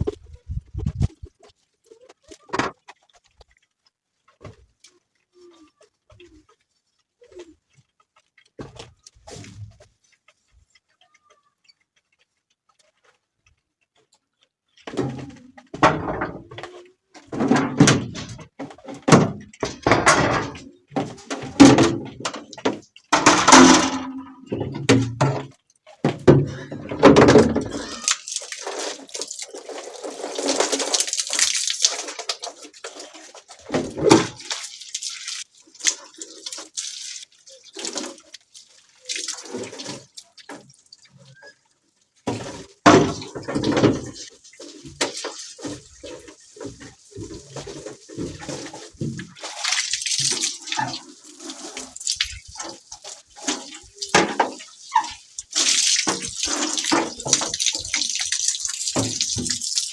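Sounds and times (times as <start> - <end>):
water splashing and knocking: 14.8 - 59.9.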